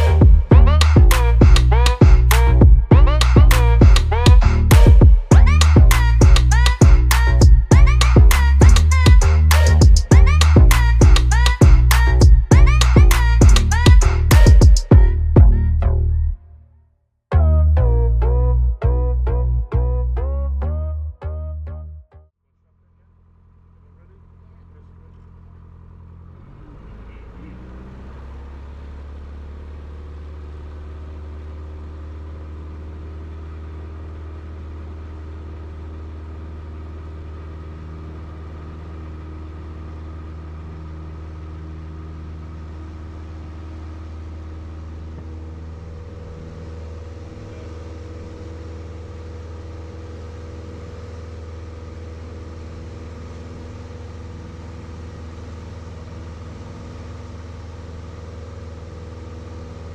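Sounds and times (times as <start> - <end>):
propeller plane engine: 23.1 - 59.9.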